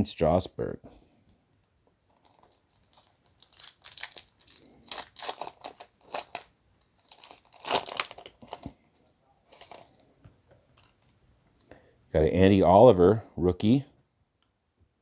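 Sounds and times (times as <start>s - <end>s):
foil wrapper tearing and crinkling: 2.1s - 8.7s, 9.6s - 9.9s.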